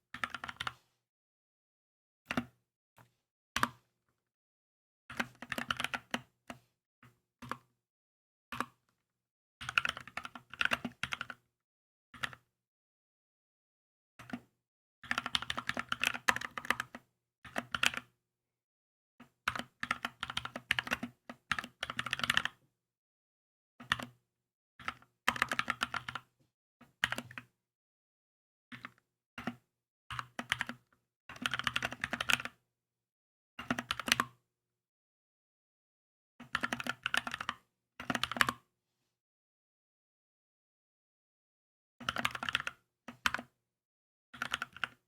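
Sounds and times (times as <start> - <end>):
mechanical keyboard typing: 21.9 - 22.5, 31.4 - 32.5, 42.0 - 42.7, 44.4 - 45.0.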